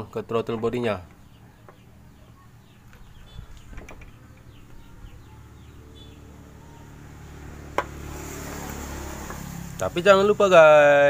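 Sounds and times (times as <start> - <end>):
falling bird chirps: 1.0 - 8.2.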